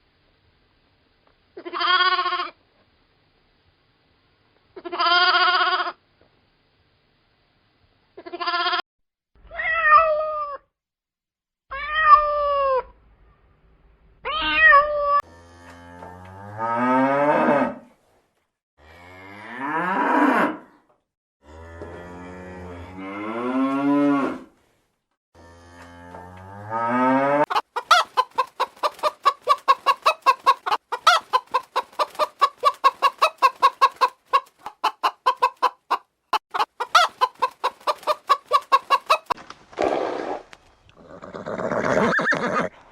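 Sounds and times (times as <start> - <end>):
cat meowing: 9.5 - 10.6, 11.7 - 12.8, 14.3 - 15.2
cow mooing: 15.2 - 17.8, 21.4 - 24.5, 25.4 - 27.5
chickens clucking: 27.5 - 39.4.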